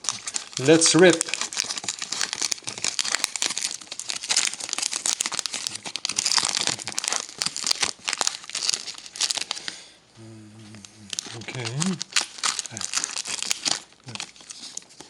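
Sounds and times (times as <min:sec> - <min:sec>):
wrapper ripping and crinkling: 0:00.0 - 0:09.8, 0:10.6 - 0:15.0.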